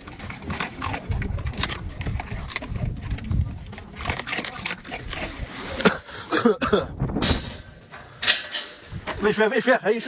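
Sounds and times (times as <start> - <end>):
dogs chewing and crunching: 0.0 - 6.1.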